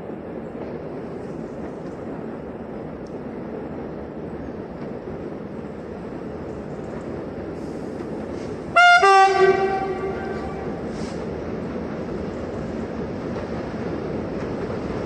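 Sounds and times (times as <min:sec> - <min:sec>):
train rumbling: 0:00.0 - 0:15.0
two-tone train horn: 0:08.7 - 0:11.1.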